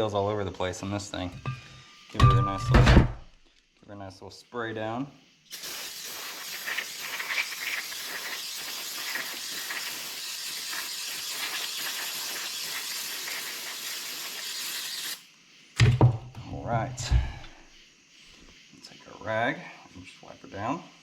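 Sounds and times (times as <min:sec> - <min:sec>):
aerosol spray can hissing: 0:05.5 - 0:15.4.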